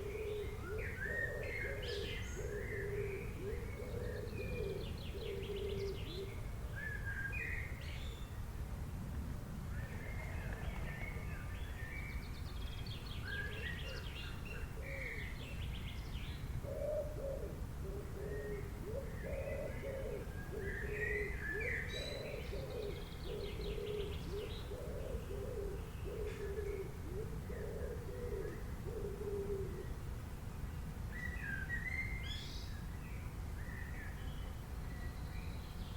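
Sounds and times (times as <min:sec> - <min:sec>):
low cooing call: 0:00.0 - 0:07.1, 0:16.6 - 0:30.0.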